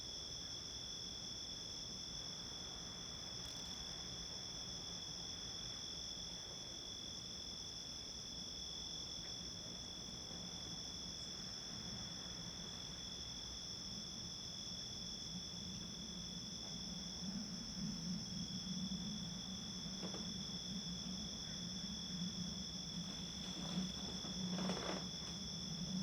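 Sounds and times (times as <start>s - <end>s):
crickets chirping: 0.0s - 26.0s
faint low hum: 8.6s - 26.0s.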